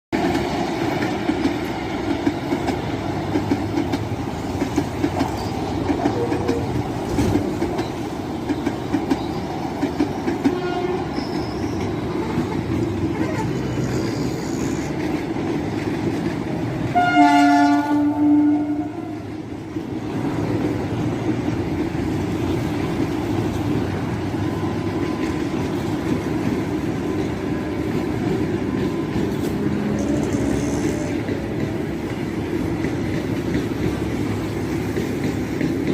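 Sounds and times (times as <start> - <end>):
train wheels clattering over rails: 0.2 - 35.9
train horn: 10.4 - 11.1, 16.9 - 19.3.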